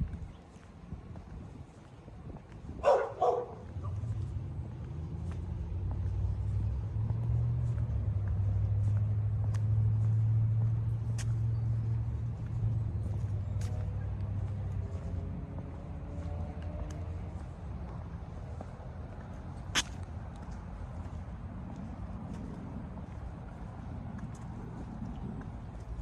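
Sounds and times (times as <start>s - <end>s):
dog barking: 2.8s - 4.0s
vehicle engine passing: 2.8s - 26.0s.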